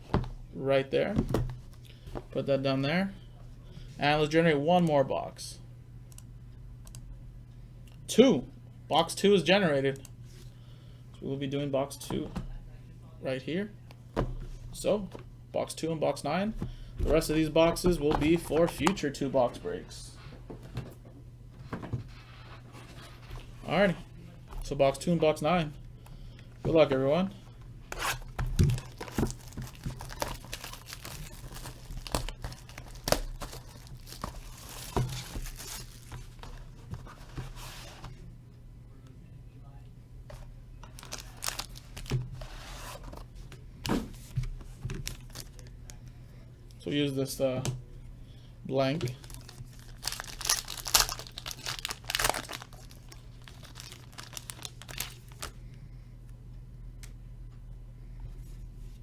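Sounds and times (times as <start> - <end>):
plastic wrapping crinkling and tearing: 28.0 - 36.6, 40.9 - 42.1, 49.1 - 55.6.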